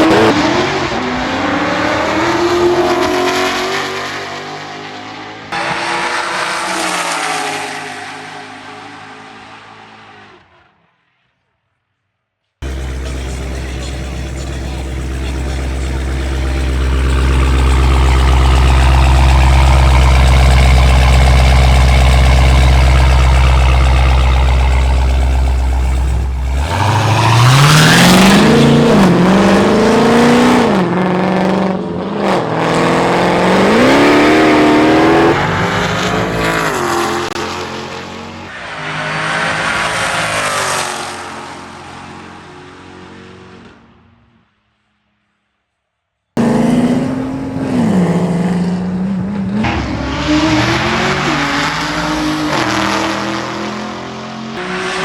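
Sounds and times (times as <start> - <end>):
car engine accelerating and upshifting: 0.0 - 10.5, 12.6 - 43.8, 46.4 - 55.0.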